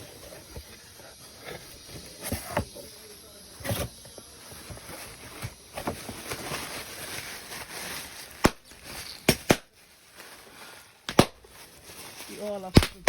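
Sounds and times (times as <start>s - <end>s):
soft handling rustle: 0.0s - 13.0s.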